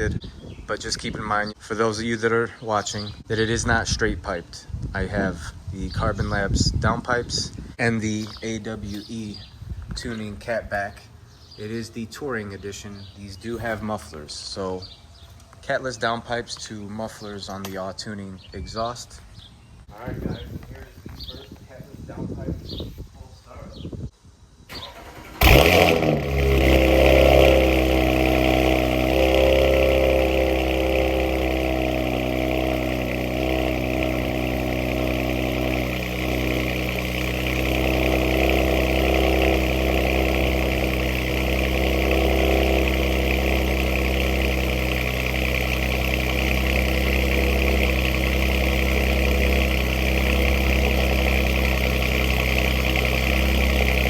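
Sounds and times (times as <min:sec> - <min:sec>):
car engine cold start: 0:24.7 - 0:54.0
car engine loud high idle: 0:25.4 - 0:54.0.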